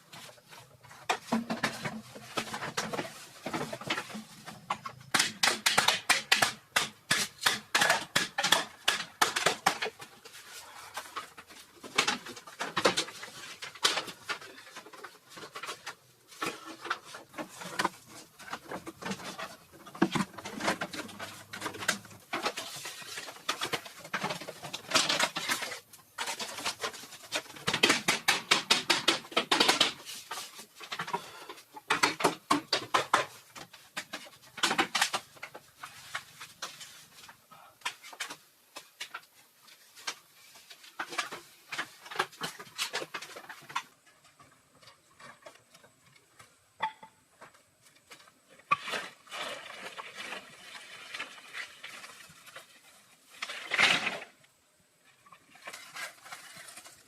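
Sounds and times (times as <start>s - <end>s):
rapid tapping and scraping: 0.1s - 46.5s.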